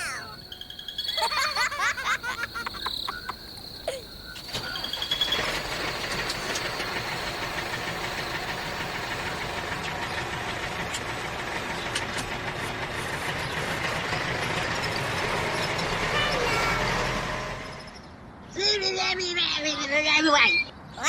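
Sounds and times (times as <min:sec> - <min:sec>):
small motor with knocking rattle: 0:04.4 - 0:18.0.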